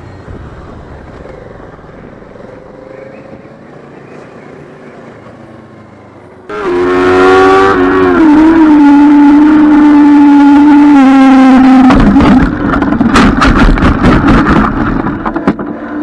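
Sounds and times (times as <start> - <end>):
road noise: 0.0 - 16.0
motorcycle engine: 6.5 - 16.0.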